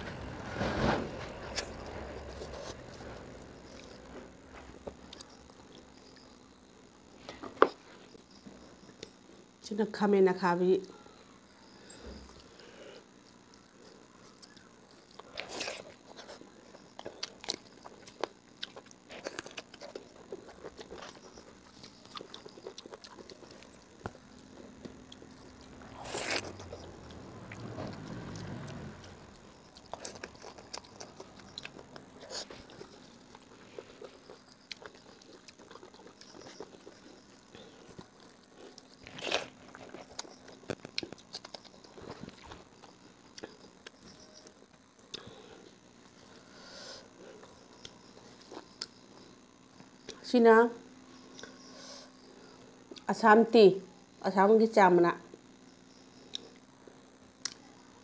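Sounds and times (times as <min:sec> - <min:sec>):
person chewing crunchy food: 0:13.8 - 0:50.2.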